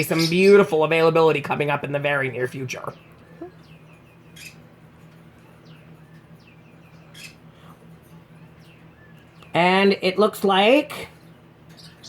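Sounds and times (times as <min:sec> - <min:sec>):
low room hum: 0:00.0 - 0:12.0
small birds chirping: 0:00.0 - 0:12.0.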